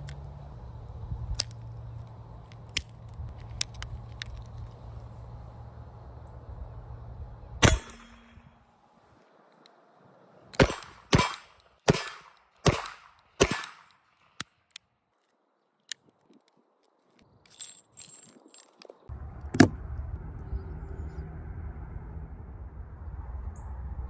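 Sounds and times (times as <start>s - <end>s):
small metallic clicks: 1.3s - 4.8s, 10.6s - 19.7s
pistol shots echoing: 7.6s - 8.4s, 10.6s - 14.0s
background rumble: 17.6s - 24.0s.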